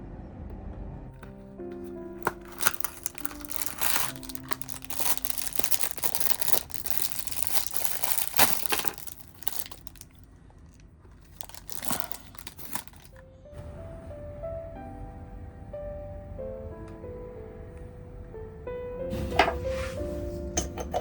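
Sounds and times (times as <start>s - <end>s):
soft background music: 0.0s - 10.3s, 11.3s - 21.0s
crinkling and rustling: 1.2s - 13.2s.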